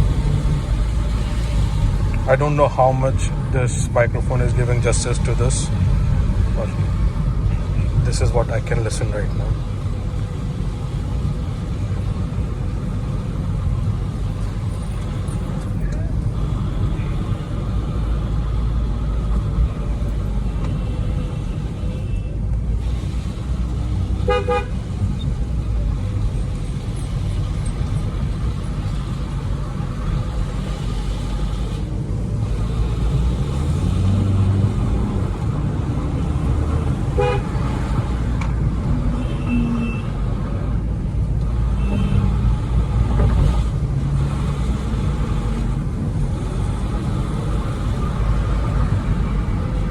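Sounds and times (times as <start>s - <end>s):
diesel engine running: 0.0s - 49.9s
tyre noise on wet road: 0.0s - 49.9s
car horn honks: 24.2s - 25.0s, 37.1s - 38.0s, 39.1s - 40.2s, 41.8s - 42.4s.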